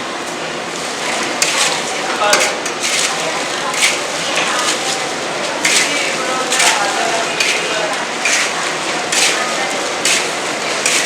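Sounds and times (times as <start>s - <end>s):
utensils clinking against a pan: 5.6s - 11.0s.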